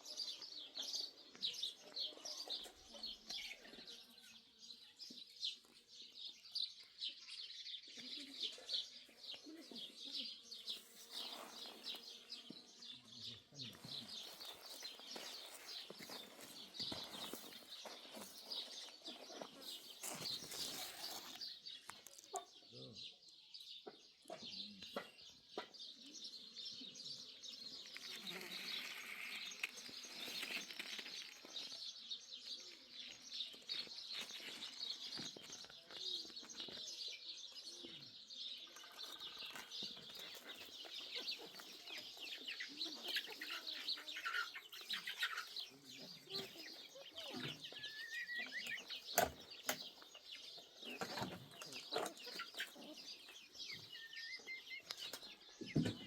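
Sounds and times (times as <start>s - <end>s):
small birds chirping: 0.0s - 56.0s
chickens clucking: 38.7s - 56.0s.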